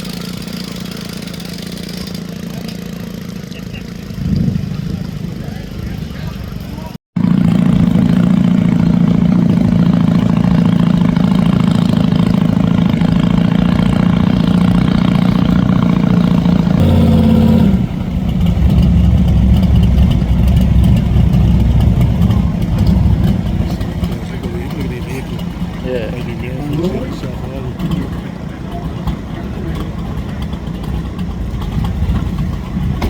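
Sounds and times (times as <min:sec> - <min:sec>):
boat engine running: 0:00.0 - 0:33.0.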